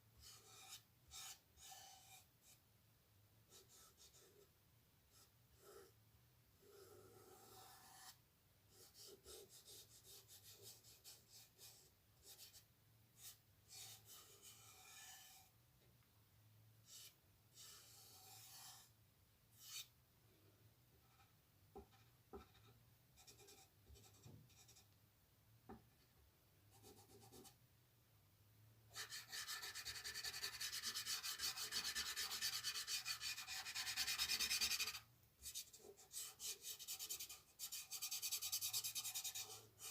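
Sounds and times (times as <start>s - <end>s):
drawing tool scratching on paper: 0.2s - 2.6s, 6.6s - 12.6s, 13.2s - 15.5s, 16.9s - 18.9s, 19.6s - 19.9s, 28.9s - 39.9s.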